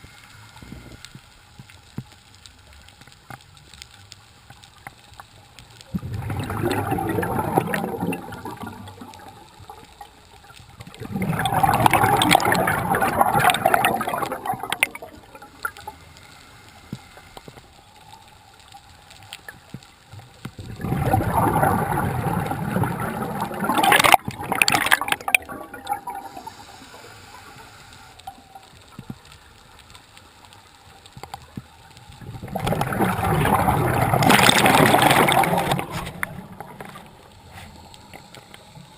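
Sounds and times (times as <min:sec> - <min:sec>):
underwater exhaled bubbles gurgling: 0:05.8 - 0:16.2, 0:16.9 - 0:29.2, 0:31.9 - 0:38.9.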